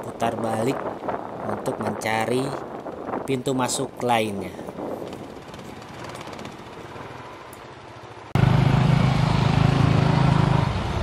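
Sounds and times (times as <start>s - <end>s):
motorcycle engines droning: 4.8s - 11.0s.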